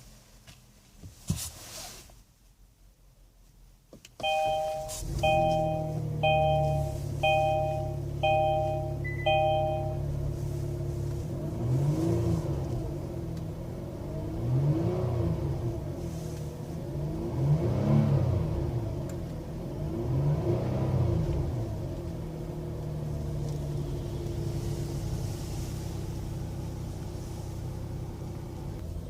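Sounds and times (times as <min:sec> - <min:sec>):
car engine starting and idling: 0:03.9 - 0:29.0
dashboard warning chime: 0:04.2 - 0:10.2
engine revving: 0:04.9 - 0:21.8.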